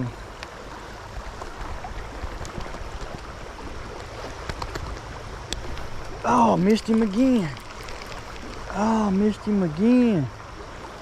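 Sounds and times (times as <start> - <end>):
stream water rushing: 0.0 - 11.0
faint ticks: 6.6 - 8.9.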